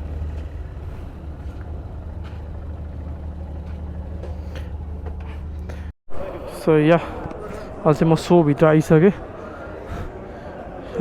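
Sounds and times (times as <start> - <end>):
motorcycle engine running: 0.0 - 5.9.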